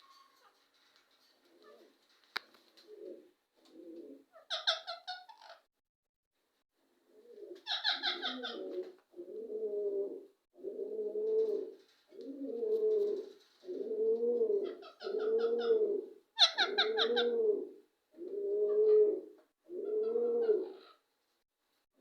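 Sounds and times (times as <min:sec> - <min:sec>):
bird cooing: 0:07.2 - 0:21.0.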